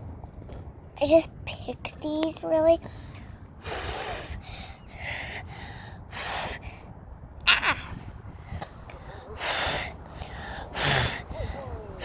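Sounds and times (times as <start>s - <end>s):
child blowing puffs of air: 3.6s - 6.8s.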